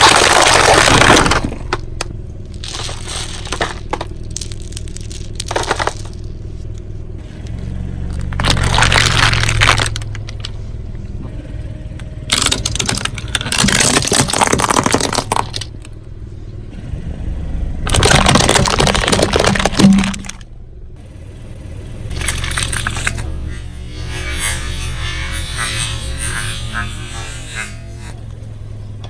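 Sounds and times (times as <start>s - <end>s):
tyre crushing objects: 0.0s - 6.3s, 8.2s - 10.5s, 12.3s - 15.8s, 17.9s - 20.4s
car engine humming: 0.0s - 29.0s.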